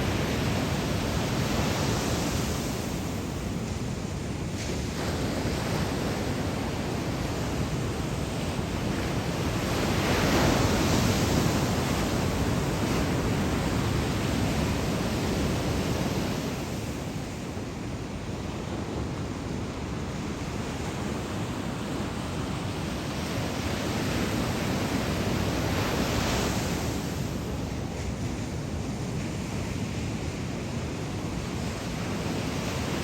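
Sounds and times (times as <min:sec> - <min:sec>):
wind noise on microphone: 0:00.0 - 0:33.0.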